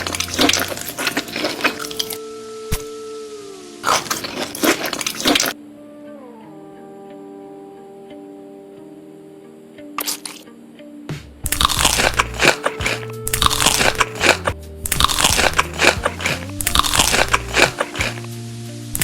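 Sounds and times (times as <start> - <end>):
crisp food crunching: 0.0 - 2.8, 3.8 - 5.6, 10.0 - 10.4, 11.5 - 18.3.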